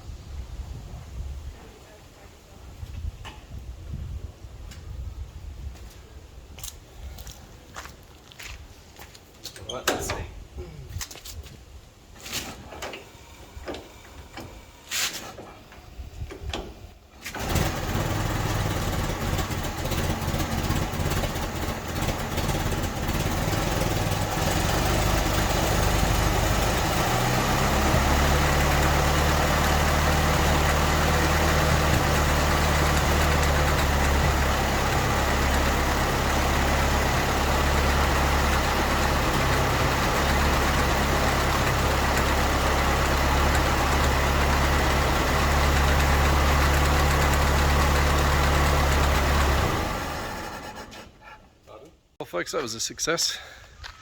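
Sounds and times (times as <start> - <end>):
car engine starting and idling: 12.6 - 51.4
engine knocks: 16.2 - 51.2.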